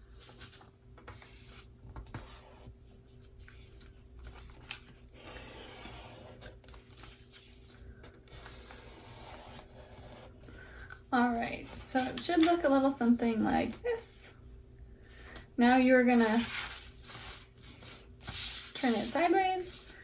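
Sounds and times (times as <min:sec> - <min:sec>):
paper rustling and creasing: 0:03.1 - 0:10.2.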